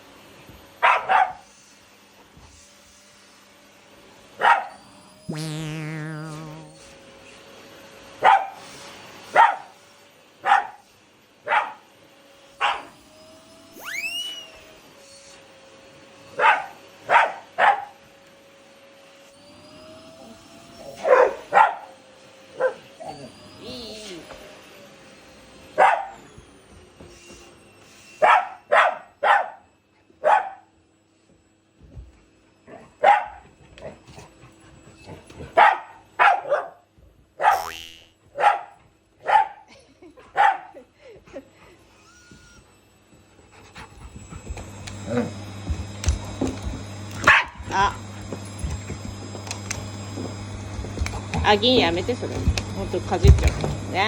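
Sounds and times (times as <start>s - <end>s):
dog barking: 0.8s - 1.4s, 4.4s - 4.7s, 8.2s - 8.6s, 9.4s - 9.7s, 10.4s - 10.8s, 11.5s - 11.8s, 16.4s - 18.0s, 21.1s - 21.9s, 22.6s - 22.8s, 25.8s - 26.2s, 28.2s - 29.6s, 30.2s - 30.7s, 33.0s - 33.4s, 35.6s - 36.8s, 38.4s - 39.7s, 40.4s - 40.8s, 47.3s - 47.6s.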